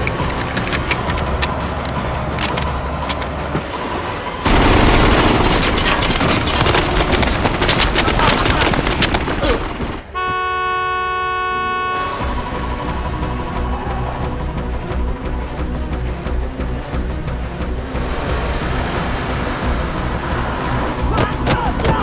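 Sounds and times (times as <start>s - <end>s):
loud clattering impacts: 0.0s - 10.1s
car horn held tone: 10.1s - 12.4s.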